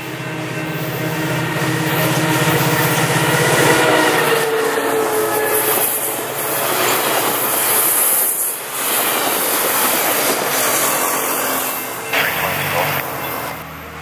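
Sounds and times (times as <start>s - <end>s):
train horn: 0.0s - 7.0s
train rumble and wheel clatter: 0.0s - 14.0s.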